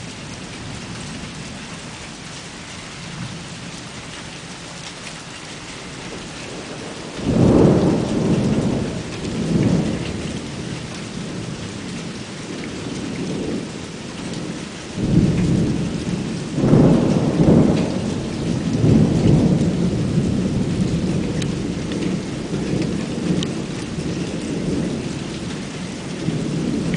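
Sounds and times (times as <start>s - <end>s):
rain falling: 0.0s - 26.9s
thunder rumbling: 6.0s - 26.9s.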